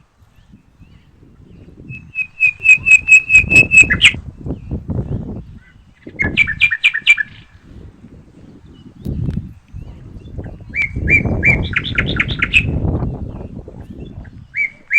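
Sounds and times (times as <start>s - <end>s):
wind buffeting microphone: 0.0s - 14.9s
songbird singing: 0.4s - 7.6s, 8.2s - 14.9s.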